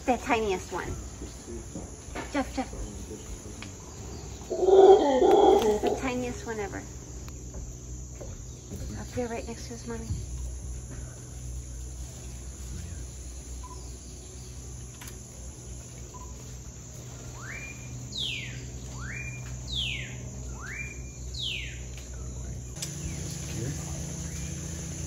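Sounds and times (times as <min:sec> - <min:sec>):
low hum: 0:00.0 - 0:25.0
bird calling: 0:02.5 - 0:07.3, 0:16.0 - 0:25.0.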